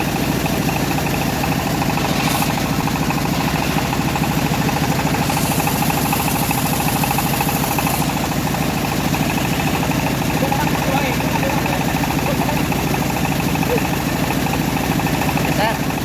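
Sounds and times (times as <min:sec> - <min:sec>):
sawmill engine running: 0:00.0 - 0:16.0
high hiss: 0:01.1 - 0:08.6.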